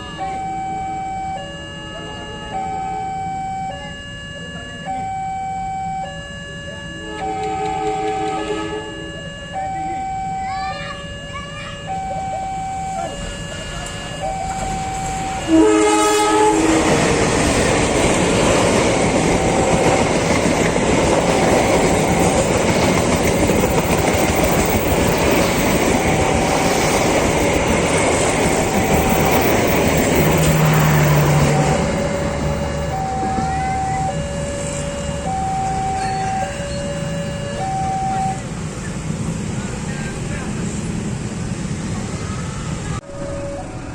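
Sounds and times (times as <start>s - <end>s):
two-note level-crossing signal: 0.0s - 10.4s, 11.0s - 16.8s, 21.2s - 38.4s, 43.0s - 43.9s
train wheels rumbling on rails: 12.9s - 43.9s.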